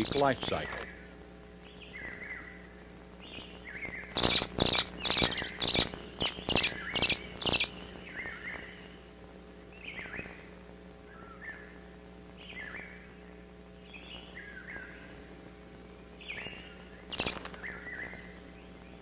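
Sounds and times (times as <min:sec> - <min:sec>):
loud harsh bird calls: 0:00.0 - 0:09.1, 0:16.2 - 0:19.0
young birds chirping softly: 0:00.0 - 0:19.0.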